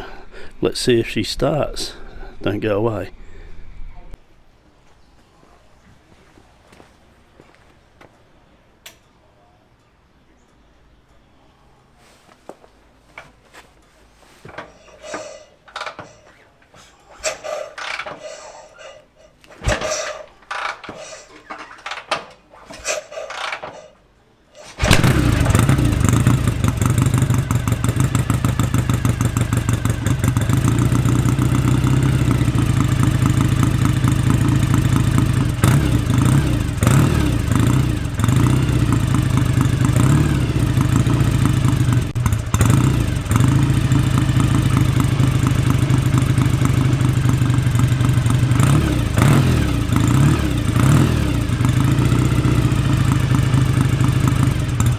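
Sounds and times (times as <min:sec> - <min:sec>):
kick-starter clunks: 0:14.4 - 0:16.4, 0:17.2 - 0:24.0, 0:24.6 - 0:31.2
motorcycle engine running: 0:24.8 - 0:54.9.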